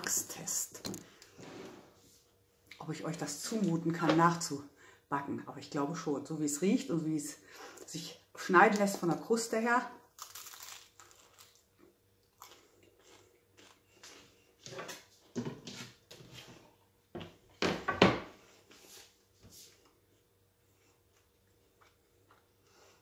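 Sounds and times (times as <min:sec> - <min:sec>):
crunching bread crust: 0:10.2 - 0:14.3.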